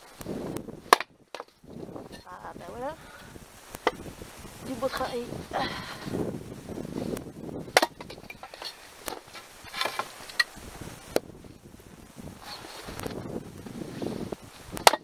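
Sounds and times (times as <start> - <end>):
axe splitting firewood: 0.8 - 1.6, 7.7 - 10.5, 14.7 - 15.0
wood knocking and clattering: 7.7 - 10.5.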